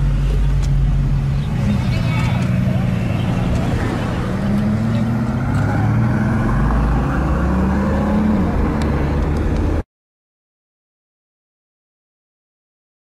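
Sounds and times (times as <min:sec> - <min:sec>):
car engine accelerating: 0:00.0 - 0:09.8.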